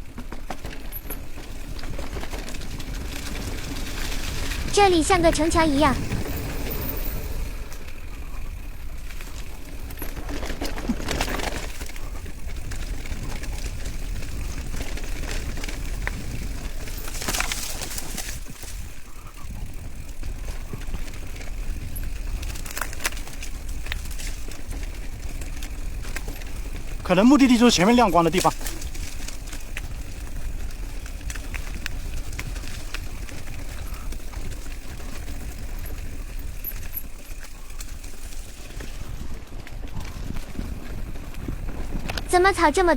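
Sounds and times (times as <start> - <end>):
bicycle clicks and rattles: 0.0 - 4.7, 5.4 - 42.9
wind rumble on microphone: 6.0 - 9.6, 10.2 - 27.1, 28.6 - 42.4.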